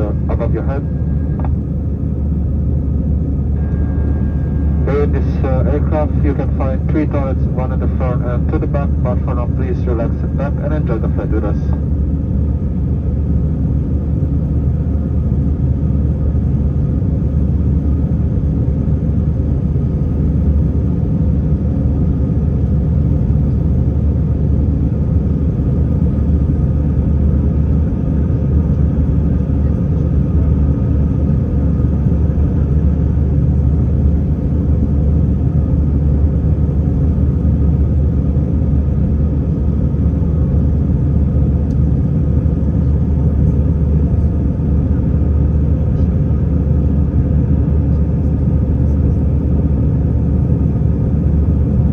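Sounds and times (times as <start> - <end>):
airliner cabin engine rumble: 0.0 - 51.9.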